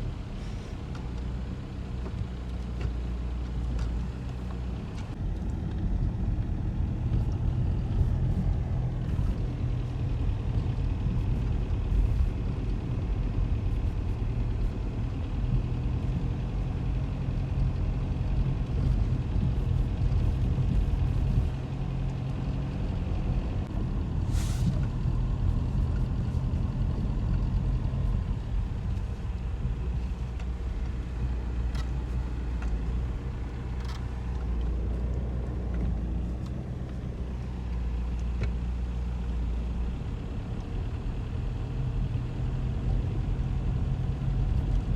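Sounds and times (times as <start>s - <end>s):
motor vehicle engine rumble: 0.0s - 44.9s
short hiss: 24.3s - 24.8s.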